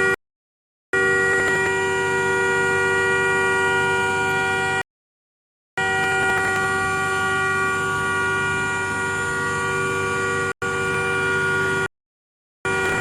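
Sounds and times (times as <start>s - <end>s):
vehicle horn sounding: 1.0s - 4.8s, 5.8s - 11.9s, 12.7s - 13.0s.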